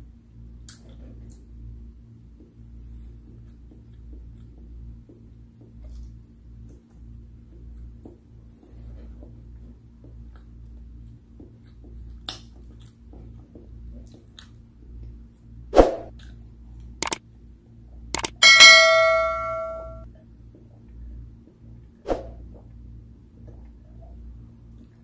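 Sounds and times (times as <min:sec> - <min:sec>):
low steady hum: 0:00.0 - 0:25.0
soft chewing: 0:02.5 - 0:15.2
bell ding: 0:18.2 - 0:20.0
click sound effects: 0:18.2 - 0:20.0
sharp knock: 0:18.2 - 0:20.0.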